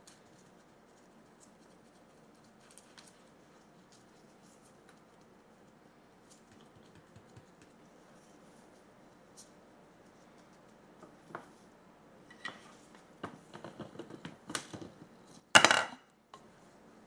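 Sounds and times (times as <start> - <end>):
dishes clinking and clattering: 15.5 - 16.0.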